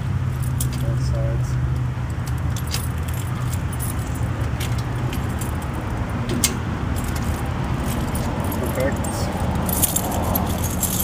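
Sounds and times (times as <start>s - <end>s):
keys jangling on a ring: 2.2s - 5.8s, 7.0s - 11.0s.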